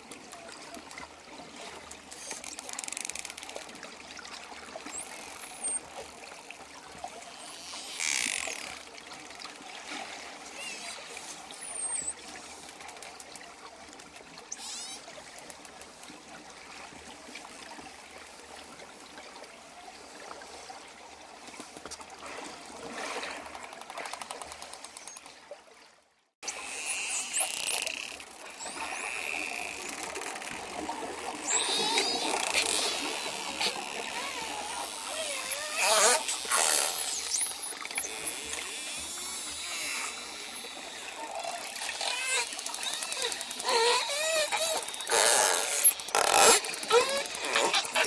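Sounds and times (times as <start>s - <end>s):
water noise: 0.0s - 25.8s, 26.4s - 48.0s
dolphins clicking: 26.4s - 48.0s
dolphins whistling: 31.4s - 48.0s.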